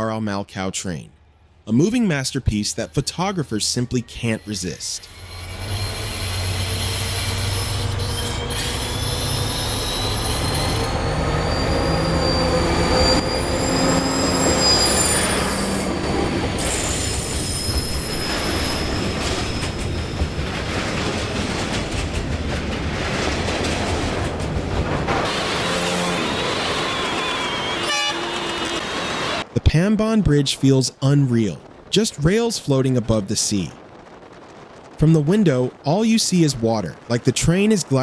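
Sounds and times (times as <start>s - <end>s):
train wheels squealing: 2.7s - 20.4s, 25.3s - 29.4s
train rumbling on rails: 2.8s - 29.6s, 33.7s - 35.8s.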